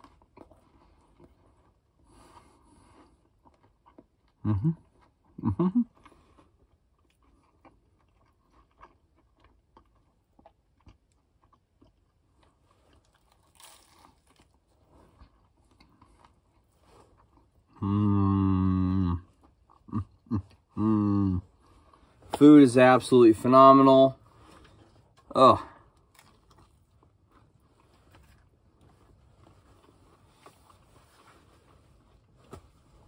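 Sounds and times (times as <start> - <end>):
man chewing food: 0.0 - 22.4, 24.2 - 33.0
man humming with enjoyment: 4.4 - 4.8, 5.4 - 5.9, 17.8 - 19.2, 19.9 - 21.4.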